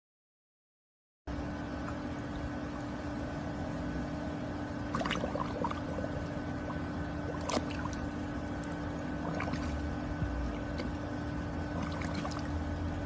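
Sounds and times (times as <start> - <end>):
low hum: 1.3 - 13.0
water sloshing and splashing: 4.7 - 13.0.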